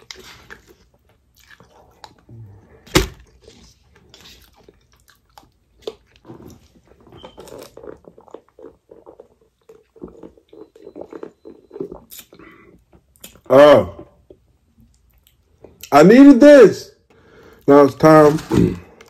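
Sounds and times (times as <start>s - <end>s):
chewing: 0.0s - 13.5s.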